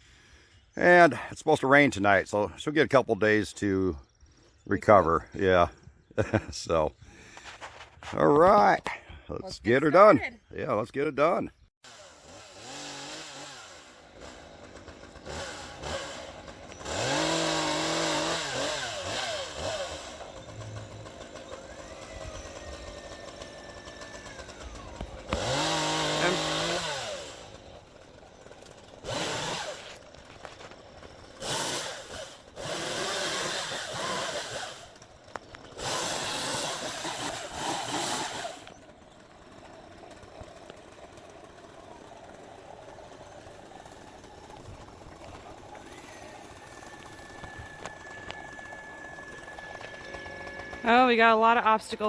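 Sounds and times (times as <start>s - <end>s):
chainsaw revving: 11.8s - 52.0s
high whine: 44.6s - 52.0s.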